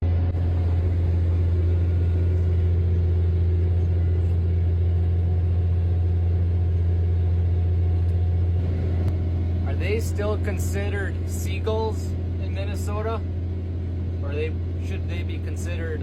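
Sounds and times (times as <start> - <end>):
tractor engine droning: 0.0 - 16.0.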